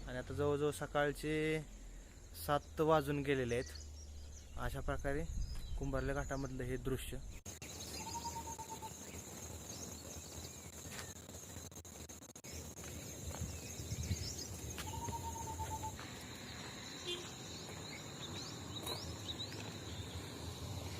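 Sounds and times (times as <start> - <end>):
insects droning high: 7.5 - 20.9.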